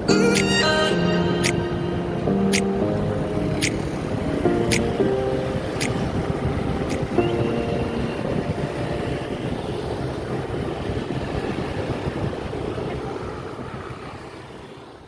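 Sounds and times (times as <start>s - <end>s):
wind on microphone: 3.0s - 14.2s.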